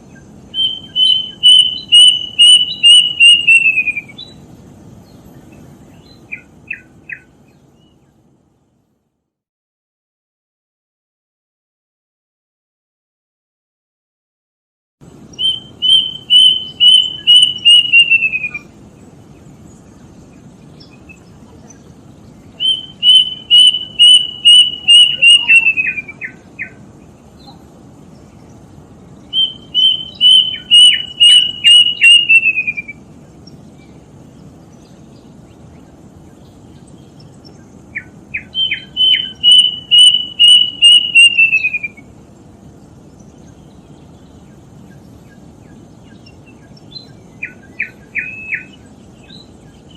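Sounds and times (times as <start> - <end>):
low background hiss: 0.0 - 9.4, 15.0 - 49.9
cuckoo whistled notes: 0.6 - 4.4, 15.4 - 18.7, 22.6 - 26.7, 29.3 - 33.0, 38.5 - 42.0.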